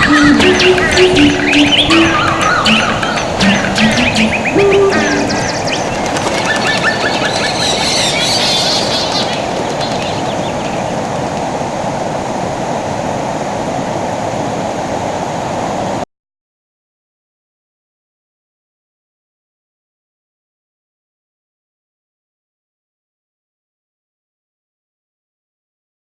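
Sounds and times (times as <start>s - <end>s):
birds chirping: 0.0s - 11.4s
rushing outdoor noise: 0.0s - 16.0s.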